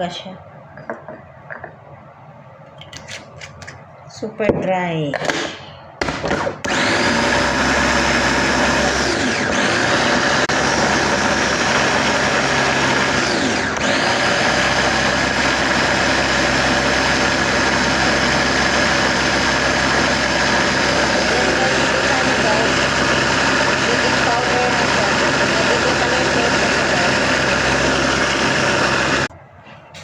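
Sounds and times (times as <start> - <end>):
blender running: 6.0 - 29.3.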